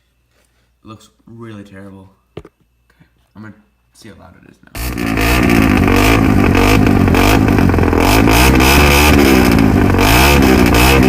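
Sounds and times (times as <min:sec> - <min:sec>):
engine revving through loud exhaust: 0:04.8 - 0:11.0.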